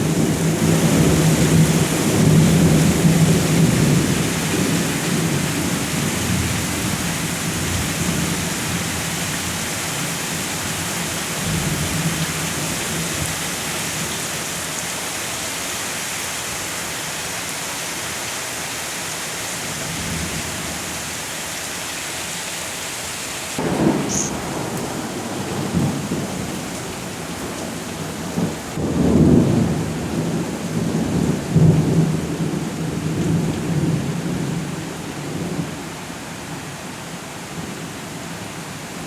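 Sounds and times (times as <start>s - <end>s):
heavy rain hissing: 0.0s - 35.9s
thunder rumbling: 23.6s - 35.7s.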